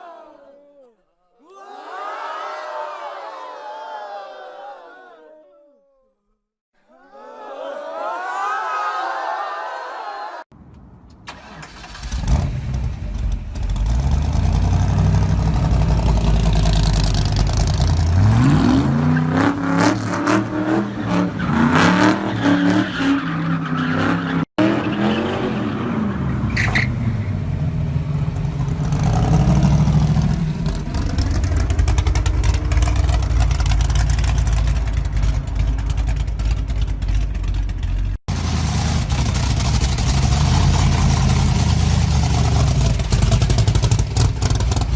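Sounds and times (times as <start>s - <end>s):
car engine revving: 11.3s - 44.9s.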